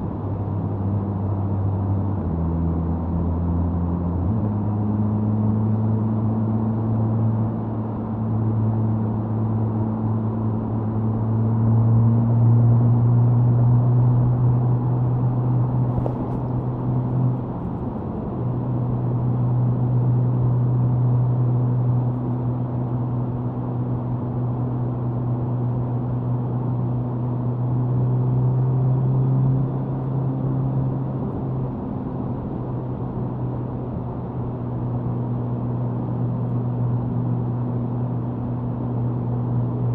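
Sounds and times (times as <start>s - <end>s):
motorcycle exhaust at high speed: 10.5s - 22.6s
wind noise on microphone: 15.8s - 18.3s.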